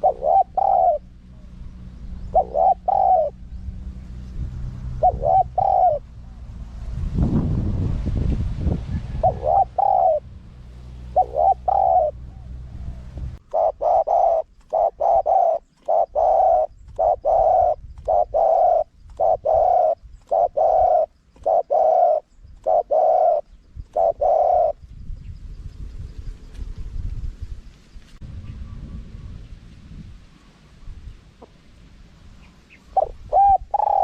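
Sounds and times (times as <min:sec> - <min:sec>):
dove cooing: 0:00.0 - 0:03.6, 0:04.8 - 0:06.2, 0:09.1 - 0:10.3, 0:11.0 - 0:24.8, 0:32.4 - 0:34.0
low rumble: 0:00.9 - 0:13.5, 0:24.8 - 0:32.4.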